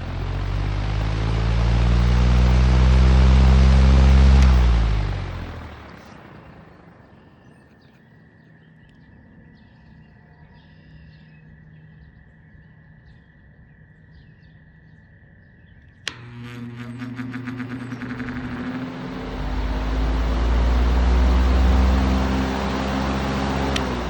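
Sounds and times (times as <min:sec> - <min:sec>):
floor fan motor humming: 0:00.0 - 0:07.1, 0:16.0 - 0:24.0
sharp click: 0:16.1 - 0:24.0.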